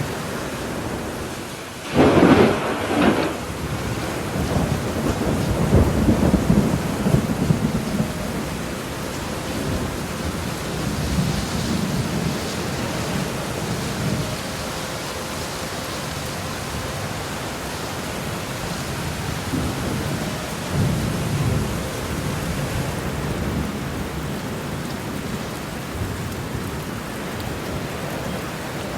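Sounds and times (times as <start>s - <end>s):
heavy rain: 0.0s - 28.9s
rolling thunder: 0.6s - 14.4s, 19.0s - 25.3s.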